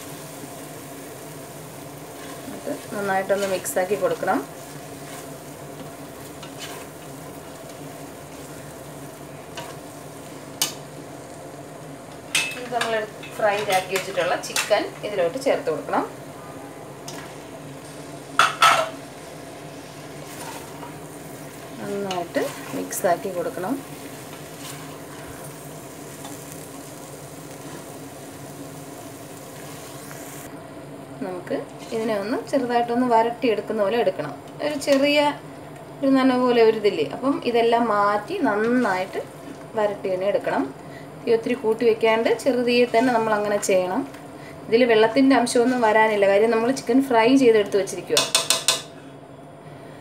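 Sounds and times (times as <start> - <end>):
masala sizzling in a pot: 0.0 - 50.0
stirring with a turner: 1.9 - 10.8, 19.9 - 30.5.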